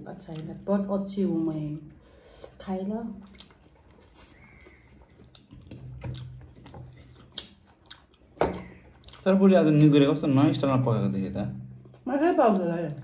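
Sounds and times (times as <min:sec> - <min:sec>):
chewing and biting food: 0:01.4 - 0:11.0
wet mouth clicks: 0:03.2 - 0:10.5.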